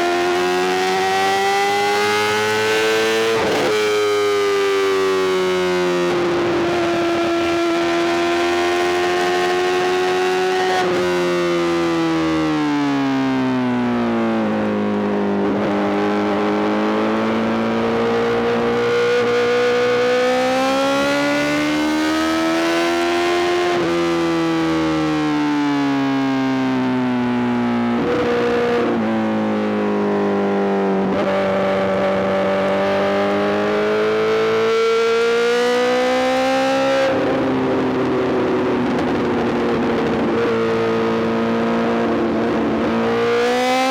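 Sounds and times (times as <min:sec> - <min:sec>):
motorcycle engine revving: 0:27.9 - 0:43.9.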